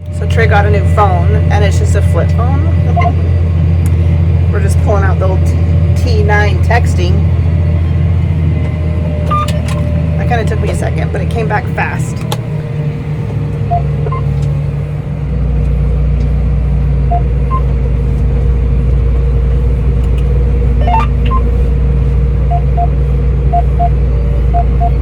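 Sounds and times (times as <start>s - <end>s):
tractor engine rumble: 0.0s - 25.0s
phone keypad beeps: 20.8s - 21.4s, 23.5s - 25.0s.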